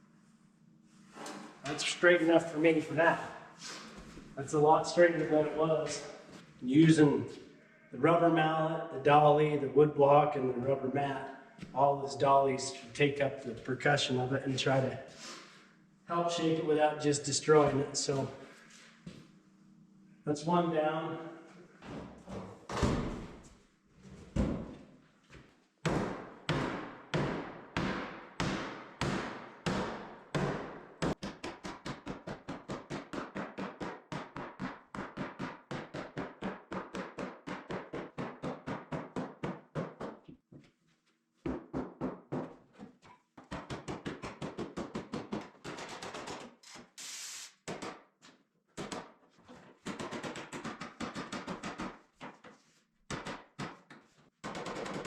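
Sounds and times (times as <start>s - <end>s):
rubber mallet hammering sheet metal: 25.9s - 40.2s, 43.4s - 46.5s, 49.8s - 52.1s, 53.1s - 55.0s.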